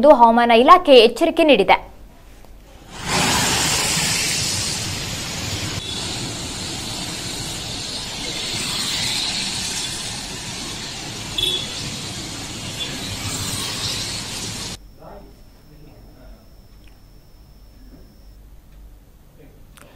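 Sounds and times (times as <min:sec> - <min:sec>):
rain falling: 0:02.9 - 0:14.8
vehicle passing: 0:02.9 - 0:14.8.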